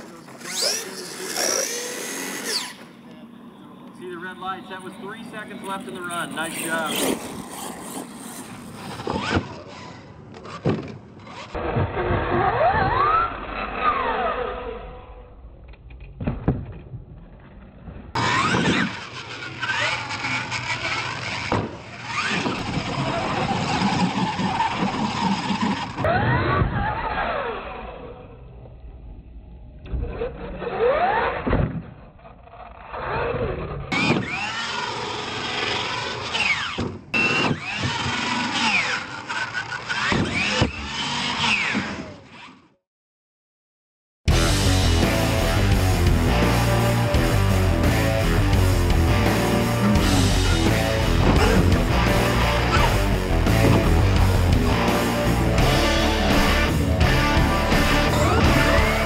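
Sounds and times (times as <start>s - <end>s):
toy truck electric motor whining: 0.1s - 2.9s, 6.4s - 11.6s, 18.2s - 28.1s, 32.4s - 42.8s
tyres on loose dirt: 18.2s - 26.1s, 33.9s - 42.5s.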